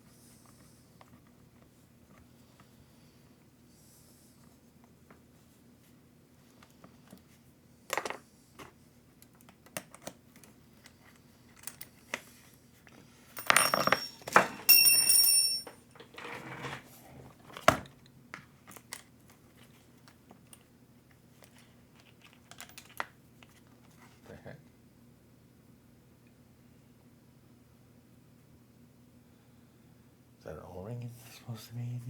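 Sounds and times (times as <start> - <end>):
small parts clicking and tapping: 13.4 - 15.8, 21.4 - 23.6
rustling and rattling: 13.4 - 16.9.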